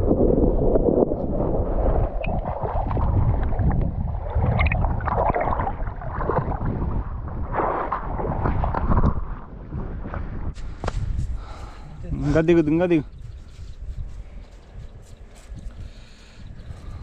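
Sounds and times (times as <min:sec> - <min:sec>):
wind buffeting microphone: 0:00.0 - 0:17.0
river water splashing: 0:02.2 - 0:06.7.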